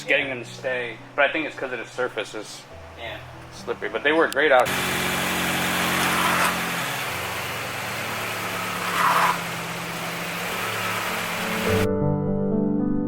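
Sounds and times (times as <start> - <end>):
car engine idling: 3.2 - 11.9.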